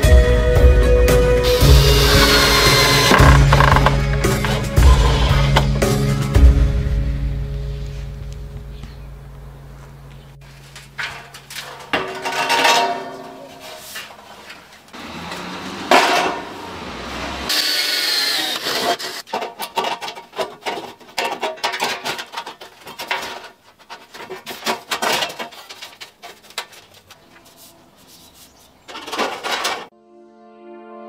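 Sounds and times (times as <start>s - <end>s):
hand tool strokes on wood: 1.4s - 5.8s.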